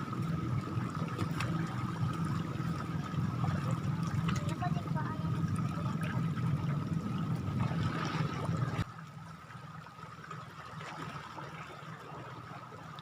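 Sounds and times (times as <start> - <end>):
water washing on shoreline: 0.0 - 8.9.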